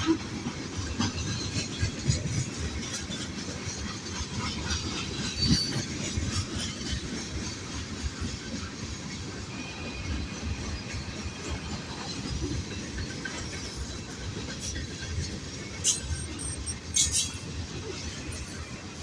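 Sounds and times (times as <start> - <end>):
freight train rolling past: 0.0 - 19.0
wheels clanking on rails: 0.0 - 19.0
high wheel squeal: 15.8 - 17.6.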